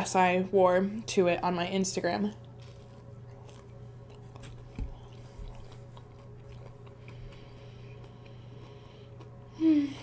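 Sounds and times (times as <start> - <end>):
steady low hum: 0.0 - 10.0
chewing crunchy food: 2.3 - 9.5.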